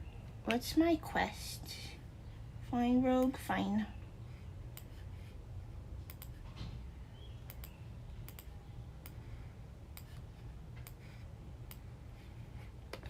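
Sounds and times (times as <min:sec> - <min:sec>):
low steady hum: 0:00.0 - 0:13.0
computer mouse clicking: 0:04.7 - 0:05.0, 0:06.0 - 0:06.4, 0:07.5 - 0:09.2, 0:09.9 - 0:11.0.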